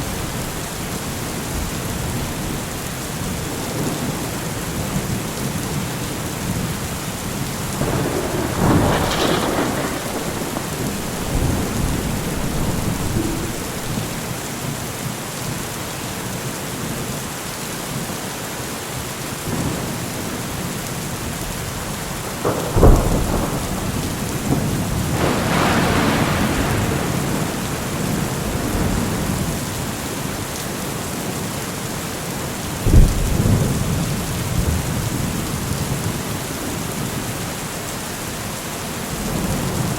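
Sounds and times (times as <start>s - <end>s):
steady rain: 0.0s - 39.9s
thunder cracks and rumbles: 6.4s - 14.9s, 21.6s - 29.9s, 32.7s - 37.4s.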